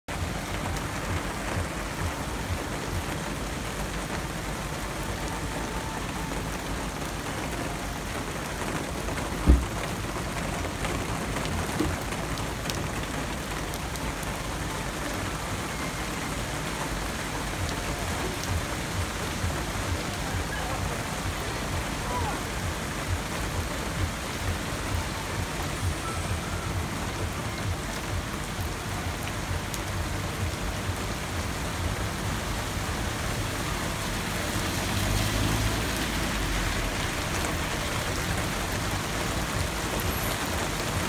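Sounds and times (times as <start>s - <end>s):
heavy rain on water: 0.0s - 41.0s
dull thump: 9.4s - 9.9s.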